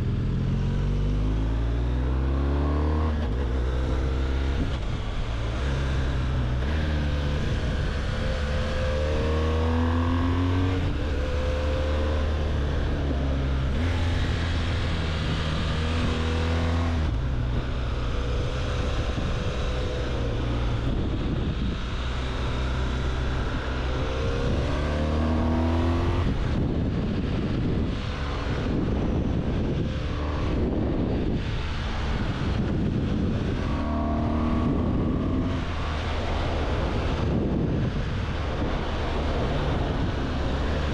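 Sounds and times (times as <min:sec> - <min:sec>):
motorcycle engine accelerating: 0:00.0 - 0:40.9
wind rushing over microphone: 0:00.0 - 0:40.9.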